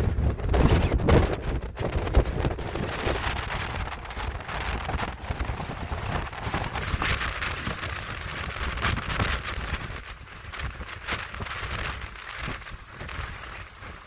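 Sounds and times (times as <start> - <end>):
crackling rain-like hiss: 0.0 - 14.0
wind buffeting microphone: 0.0 - 14.0.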